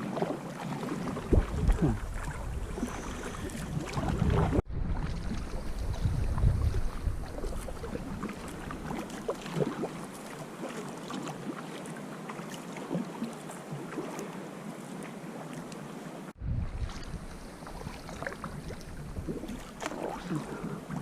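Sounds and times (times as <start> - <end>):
small splashes: 0.0 - 15.8, 16.7 - 21.0
water lapping around kayak: 0.0 - 21.0
wind buffeting microphone: 1.0 - 9.8, 16.4 - 21.0.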